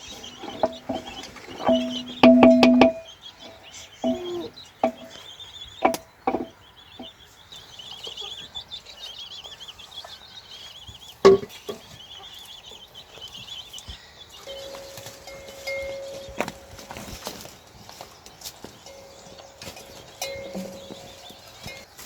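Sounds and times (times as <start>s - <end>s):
sharp wooden knocks: 0.0s - 3.1s, 4.0s - 5.2s, 5.8s - 6.5s, 11.2s - 11.5s
small bird warbling: 3.4s - 5.2s.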